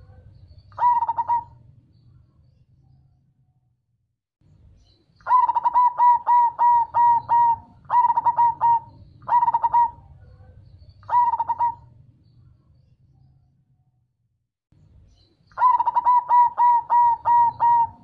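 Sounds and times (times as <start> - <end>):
dove cooing: 0.0 - 1.7, 5.2 - 11.9, 15.6 - 18.0.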